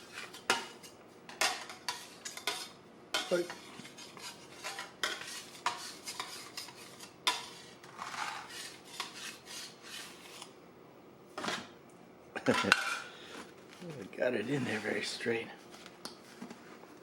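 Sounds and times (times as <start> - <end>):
kitchenware clinking and scraping: 0.0 - 10.4, 11.4 - 11.8, 12.4 - 13.1.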